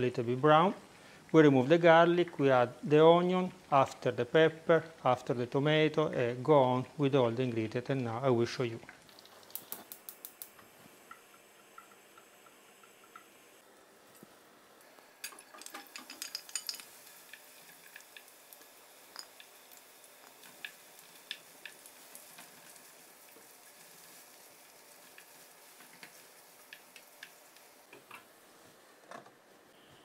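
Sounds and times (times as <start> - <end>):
onions sizzling in oil: 9.0 - 29.0.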